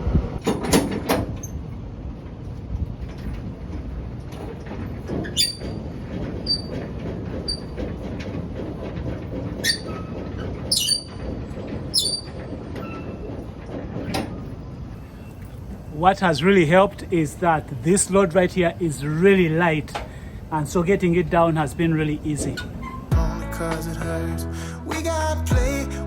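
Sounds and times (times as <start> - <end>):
crank gear grinding: 5.0 - 14.4
metallic clinks and squeaks: 5.1 - 6.8, 7.4 - 7.8, 9.6 - 13.4.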